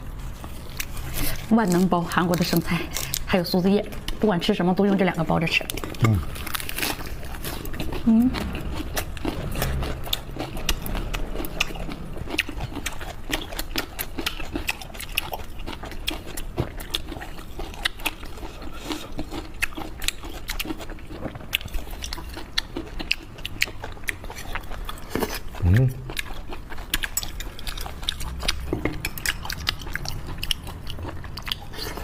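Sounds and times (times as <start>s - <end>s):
crisp chewing crunches: 5.7s - 32.0s.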